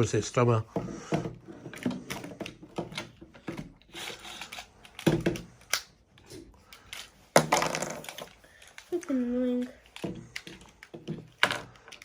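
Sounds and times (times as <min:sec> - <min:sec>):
plastic clicks and knocks: 0:00.8 - 0:05.9.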